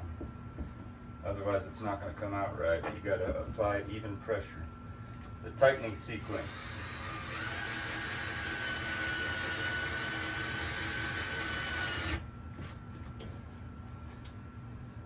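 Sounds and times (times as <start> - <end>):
power drill driving screw into wood: 5.8 - 12.7.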